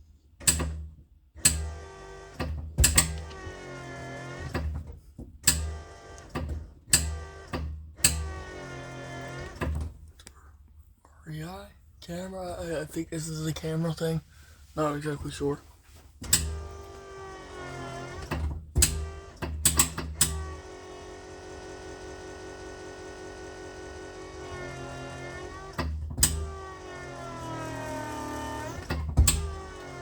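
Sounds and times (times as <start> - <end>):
small electric motor whirring: 16.6 - 18.3, 20.3 - 30.0.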